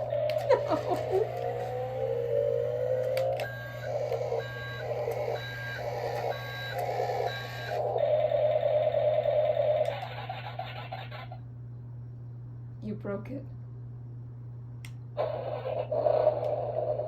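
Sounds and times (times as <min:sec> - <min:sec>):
reversing beeper: 0:00.0 - 0:09.8
small electric motor whining: 0:00.0 - 0:11.1.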